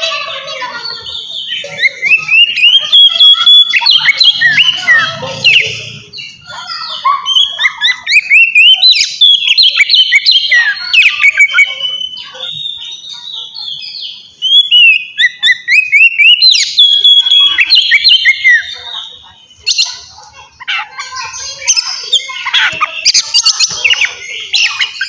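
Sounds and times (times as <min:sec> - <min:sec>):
bird singing whistled phrases: 0:01.1 - 0:06.3, 0:07.2 - 0:19.9.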